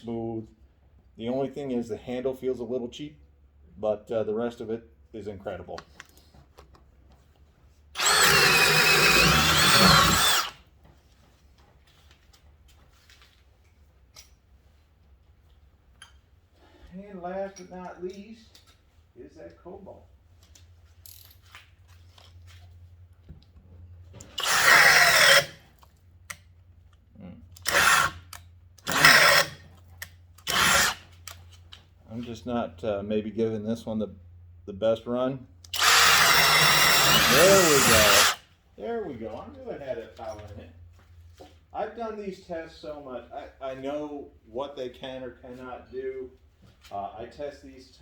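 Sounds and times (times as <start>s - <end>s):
drill boring through wood: 8.0s - 10.6s, 24.2s - 25.6s, 27.6s - 29.6s, 30.4s - 31.0s, 35.7s - 38.4s.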